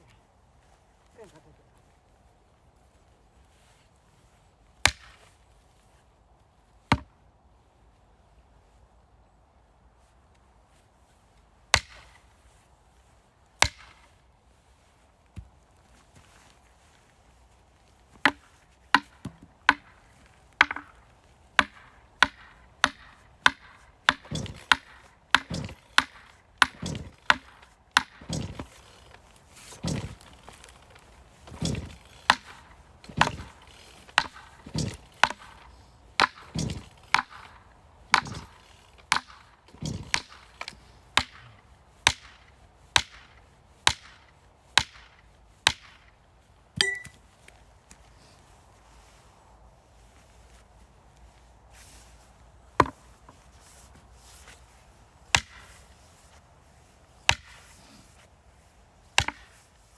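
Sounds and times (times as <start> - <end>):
axe chopping wood: 4.9 - 5.3, 6.9 - 7.1, 11.8 - 12.2, 13.6 - 14.1, 18.2 - 21.0, 21.6 - 46.0, 46.8 - 47.2, 52.8 - 53.1, 55.3 - 55.8, 57.3 - 57.8, 59.2 - 59.6
wood cracking: 19.0 - 40.7.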